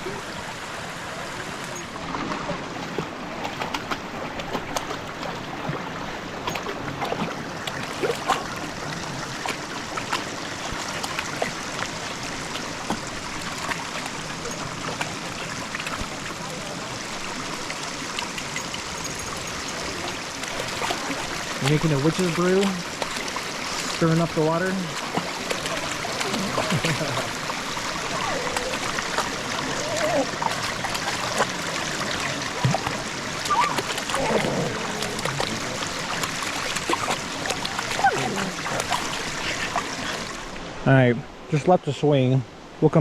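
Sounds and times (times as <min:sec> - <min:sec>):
creek water rushing: 0:00.0 - 0:43.0
dog splashing in water: 0:19.7 - 0:40.2.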